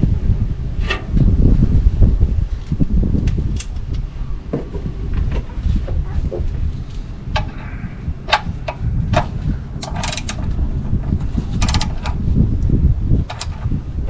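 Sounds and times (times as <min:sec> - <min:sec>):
steady low rumble: 0:00.0 - 0:14.0
ratchet clicking: 0:09.8 - 0:12.3, 0:13.3 - 0:13.8.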